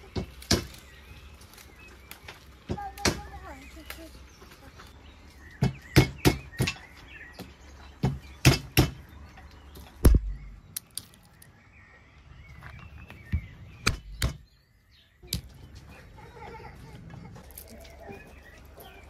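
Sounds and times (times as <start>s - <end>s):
hammer cracking walnuts on wood: 0.0s - 1.0s, 10.0s - 11.5s
birds chirping faintly: 0.0s - 19.0s.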